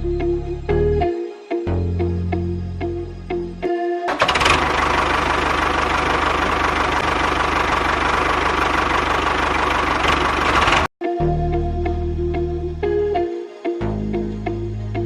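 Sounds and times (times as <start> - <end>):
background music: 0.0 - 4.2, 11.0 - 15.0
small engine running: 4.1 - 10.9.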